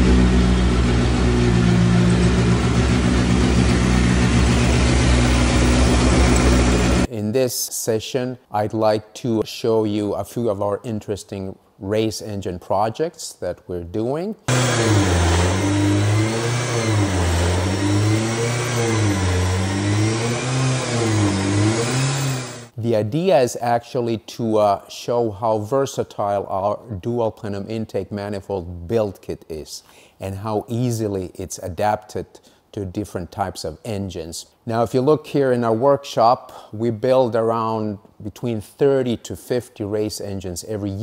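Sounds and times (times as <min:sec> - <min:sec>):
loud car engine running: 0:00.0 - 0:07.1, 0:14.5 - 0:22.7.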